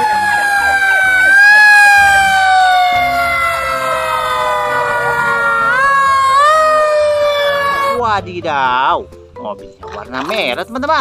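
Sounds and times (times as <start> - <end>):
fire engine siren wailing: 0.0 - 8.0.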